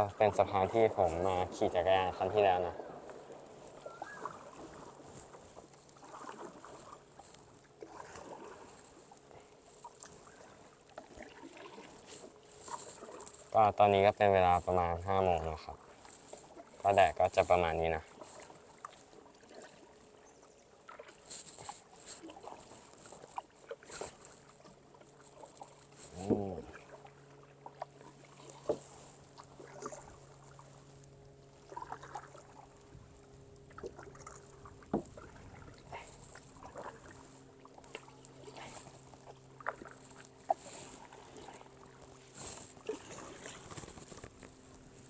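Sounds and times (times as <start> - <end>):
paddle splashing in water: 0.0 - 13.6, 15.6 - 45.0.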